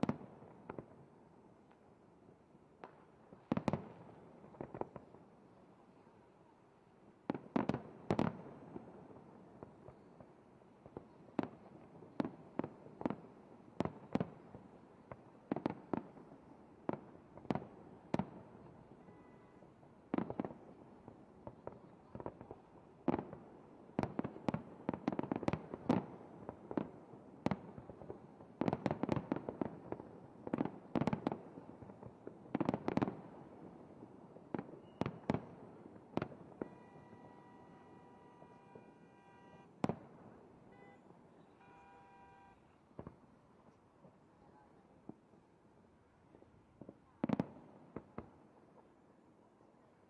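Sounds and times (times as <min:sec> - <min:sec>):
fireworks bursting: 0:07.2 - 0:44.2.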